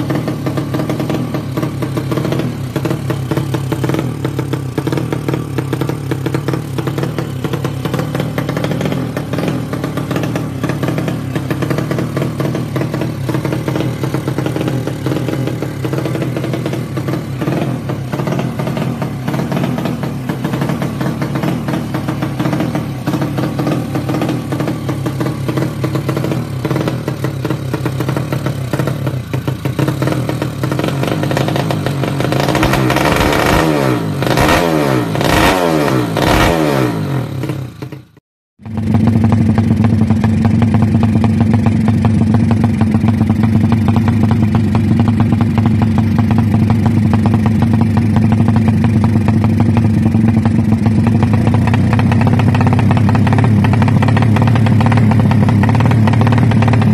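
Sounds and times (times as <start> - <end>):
motorbike engine running steadily: 0.0 - 56.9
two-stroke engine revving: 0.0 - 56.9.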